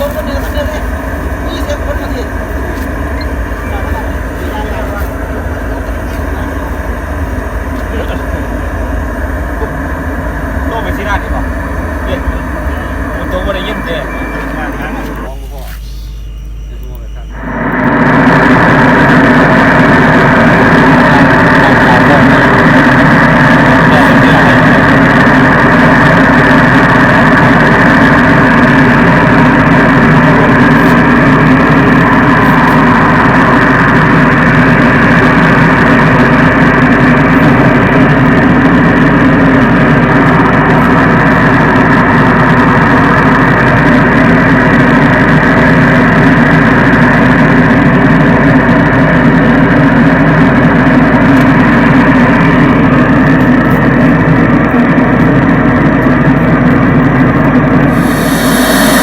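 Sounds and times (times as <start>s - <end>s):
loudspeaker dense rush: 0.0s - 26.3s, 51.6s - 59.0s.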